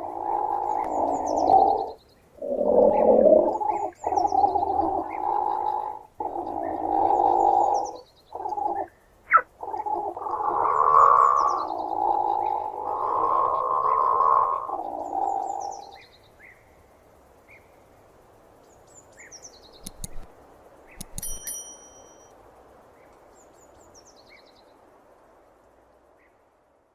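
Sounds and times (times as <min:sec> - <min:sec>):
clicks: 0:19.8 - 0:22.3.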